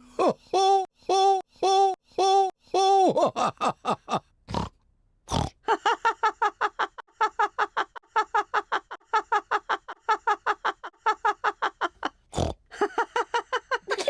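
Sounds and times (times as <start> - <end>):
cartoon voice laughing: 0.2 - 4.2.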